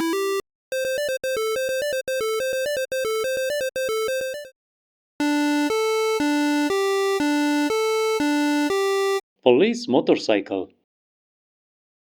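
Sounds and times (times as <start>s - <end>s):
synthesized chiptune beeps: 0.0s - 4.5s, 5.2s - 9.2s.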